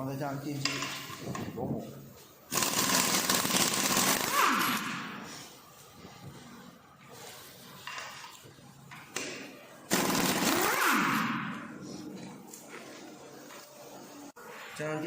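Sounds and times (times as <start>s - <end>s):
impact wrench spinning: 2.5s - 5.3s, 9.9s - 11.8s.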